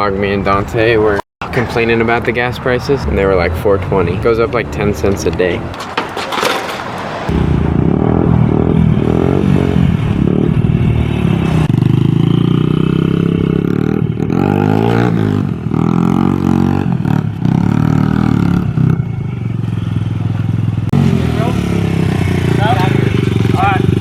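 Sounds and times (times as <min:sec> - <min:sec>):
vehicle engine revving: 0:06.6 - 0:24.0.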